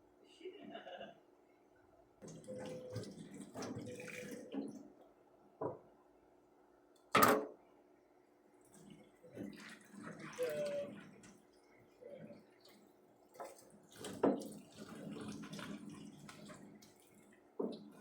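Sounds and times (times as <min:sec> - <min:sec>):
water splashing at a sink: 0:02.2 - 0:04.9, 0:08.7 - 0:18.0.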